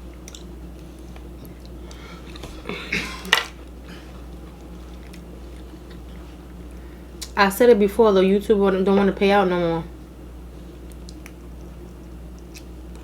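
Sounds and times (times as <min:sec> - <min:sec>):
steady low hum: 0:00.0 - 0:13.0
person chewing: 0:00.1 - 0:06.4, 0:10.8 - 0:13.0.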